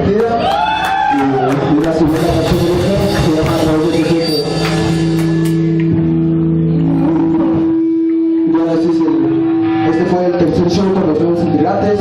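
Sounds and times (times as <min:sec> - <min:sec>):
punk rock band playing live: 0:01.6 - 0:12.0
drum and cymbal hits: 0:02.0 - 0:05.9.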